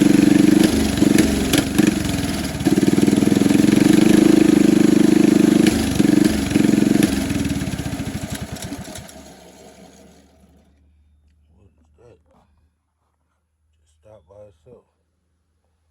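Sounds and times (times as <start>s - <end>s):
small engine running: 0.0s - 10.8s.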